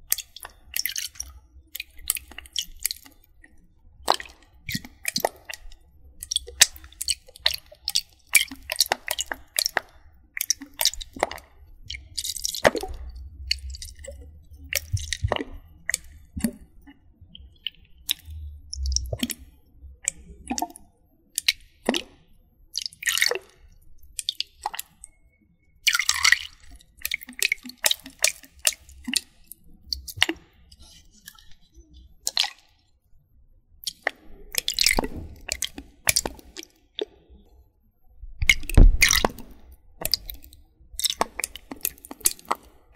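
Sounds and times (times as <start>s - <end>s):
wet squishing and dripping: 0.0s - 42.9s.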